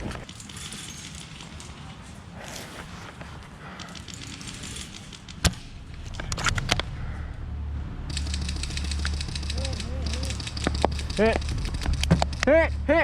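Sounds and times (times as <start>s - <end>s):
airsoft gun clicks: 3.6s - 6.8s, 8.1s - 12.5s.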